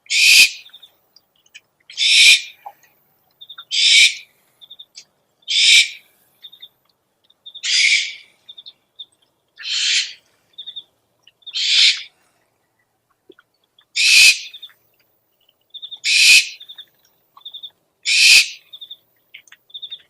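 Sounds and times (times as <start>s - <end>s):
owl screeching: 0.1s - 0.6s, 1.9s - 2.5s, 3.7s - 4.2s, 5.5s - 6.0s, 7.6s - 8.3s, 9.6s - 10.2s, 11.5s - 12.1s, 14.0s - 14.6s, 16.0s - 16.6s, 18.1s - 18.6s.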